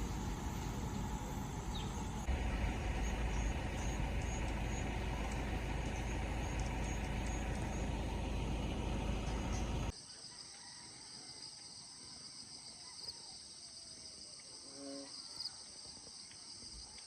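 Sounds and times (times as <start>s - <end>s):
insects buzzing: 0.0s - 9.9s, 14.4s - 16.7s
vehicle road noise: 0.0s - 9.9s.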